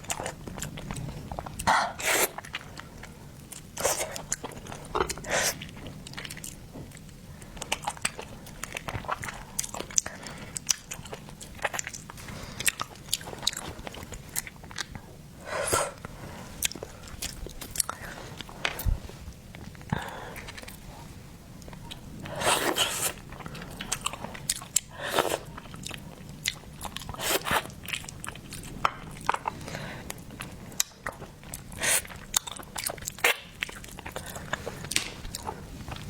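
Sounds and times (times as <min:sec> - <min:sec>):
person chewing seafood: 0:00.0 - 0:20.9, 0:21.6 - 0:36.0.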